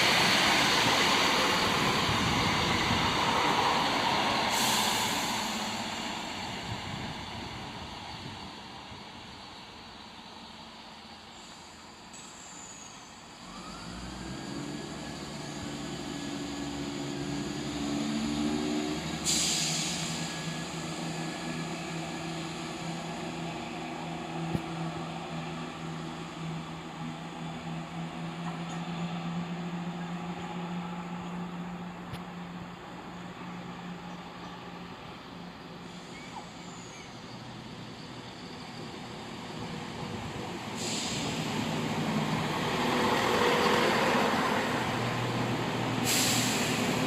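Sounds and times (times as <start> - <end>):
diesel train engine running: 0.0 - 47.0
air brakes hissing: 4.0 - 6.2, 11.3 - 14.3, 18.6 - 24.8, 35.7 - 39.0, 40.6 - 42.0, 45.9 - 47.0.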